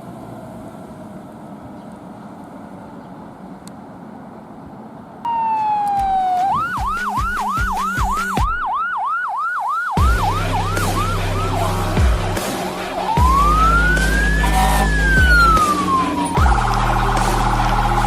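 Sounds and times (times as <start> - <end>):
truck engine noise: 0.0 - 9.2, 9.9 - 18.0
fire engine siren wailing and yelping: 5.3 - 18.0
air horn blast: 10.0 - 17.4.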